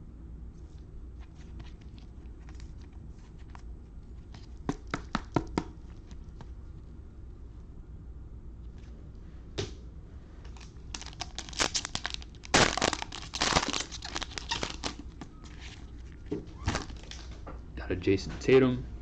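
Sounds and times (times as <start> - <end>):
wrapper tearing and crinkling: 10.5 - 17.3.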